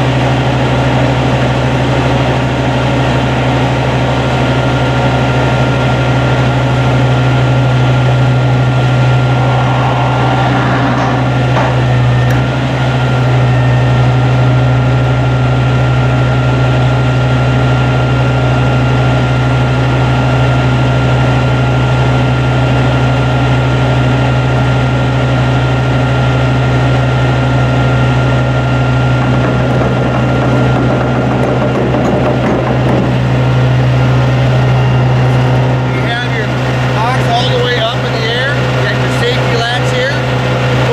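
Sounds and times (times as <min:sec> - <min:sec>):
truck engine droning: 0:00.0 - 0:40.9
thin steady whine: 0:07.0 - 0:15.7, 0:18.0 - 0:40.9.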